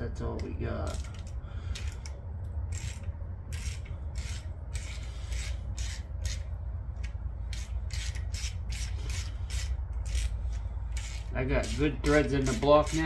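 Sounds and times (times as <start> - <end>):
low steady hum: 0.0 - 13.0
hand tool rasping strokes: 2.7 - 13.0.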